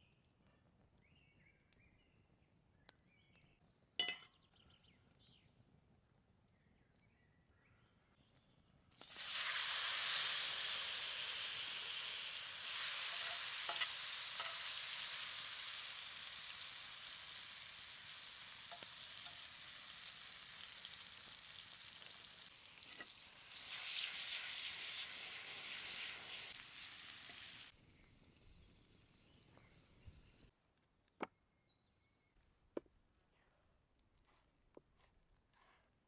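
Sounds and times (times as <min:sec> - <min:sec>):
small pops of hot fat: 0:08.9 - 0:09.6, 0:18.0 - 0:20.2
mushrooms sizzling in a hot pan: 0:09.0 - 0:27.8.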